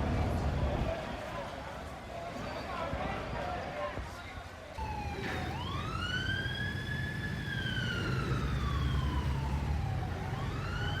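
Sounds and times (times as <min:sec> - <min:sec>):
emergency siren wailing: 0:04.8 - 0:11.0.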